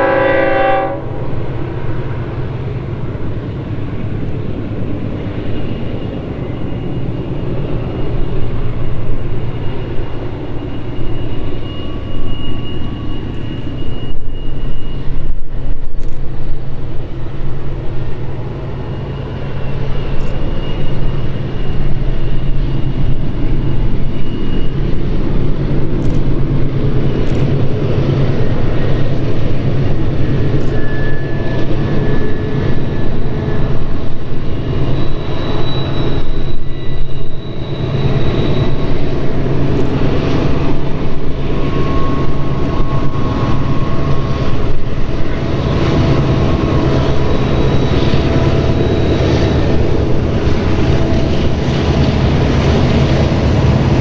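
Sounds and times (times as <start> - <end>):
diesel locomotive drone: 0.0 - 54.0
train rumble: 0.0 - 54.0
brief high squeals: 5.3 - 15.4, 18.2 - 25.5, 28.8 - 40.7, 41.4 - 53.7.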